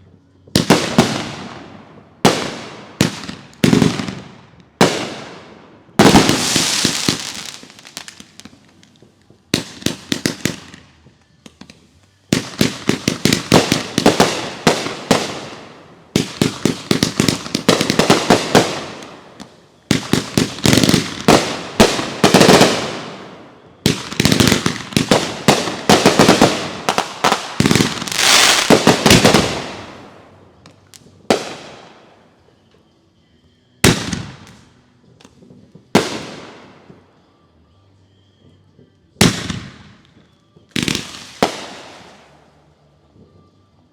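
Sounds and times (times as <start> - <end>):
fireworks bangs: 0.6 - 32.0.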